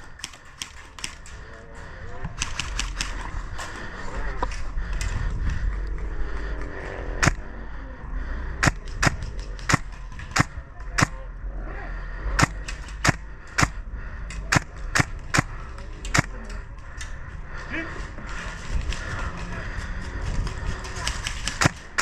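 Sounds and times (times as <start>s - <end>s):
airsoft gun shots: 12.4s - 13.8s.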